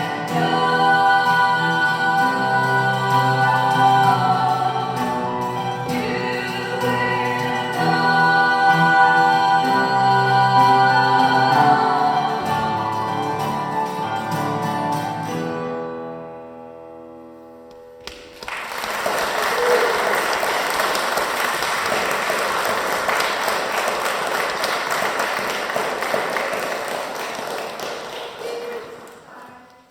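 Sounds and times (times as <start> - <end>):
audience applauding: 18.0 - 29.9.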